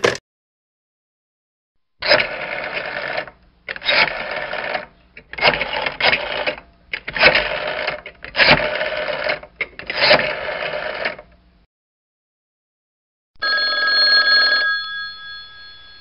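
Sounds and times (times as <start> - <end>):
old telephone bell ringing: 13.4 - 16.0.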